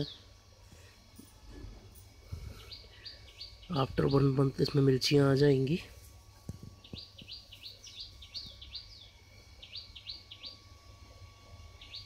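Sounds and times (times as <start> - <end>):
small bird chirping: 2.3 - 4.8, 6.4 - 10.8, 11.6 - 12.0.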